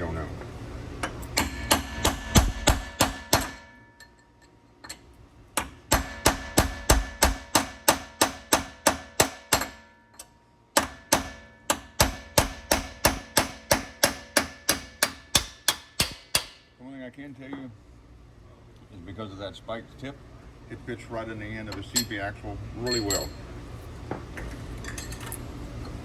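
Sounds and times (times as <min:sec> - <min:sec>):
hammer striking steel punch: 0:01.4 - 0:03.9, 0:05.6 - 0:16.7.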